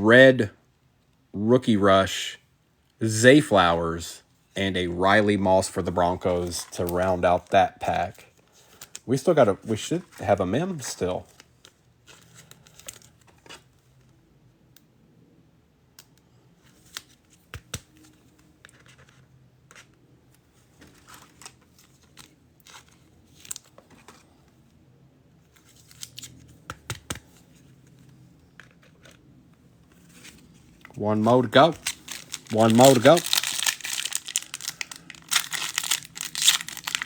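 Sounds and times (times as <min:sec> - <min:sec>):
cards clicking and scraping: 0:16.0 - 0:20.0, 0:25.5 - 0:37.0
foil wrappers crinkling: 0:30.8 - 0:37.0.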